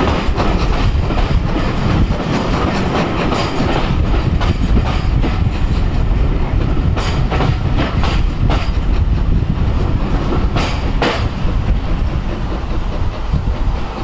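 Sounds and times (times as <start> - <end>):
train coaches rumbling past: 0.0 - 14.0
wheels clacking over rail joints: 0.0 - 14.0.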